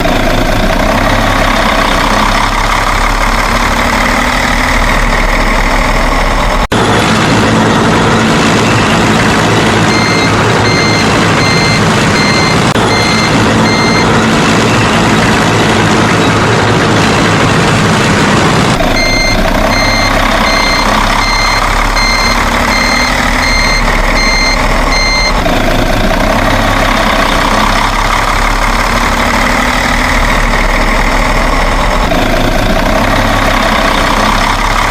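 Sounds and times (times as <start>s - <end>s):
truck engine running: 0.0s - 34.9s
reversing alarm beeping: 9.8s - 14.9s, 18.8s - 25.4s.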